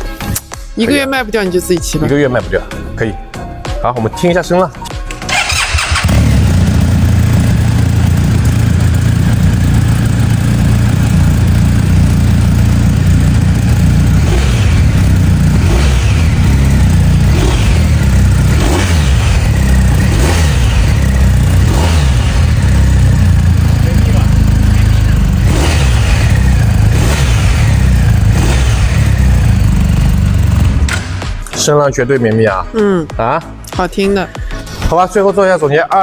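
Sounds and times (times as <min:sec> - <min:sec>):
motorcycle engine idling and revving: 0:05.1 - 0:31.5.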